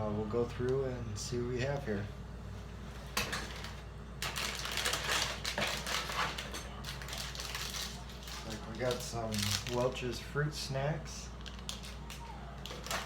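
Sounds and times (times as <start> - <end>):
plastic packets crinkling: 3.5 - 10.0, 11.4 - 13.0.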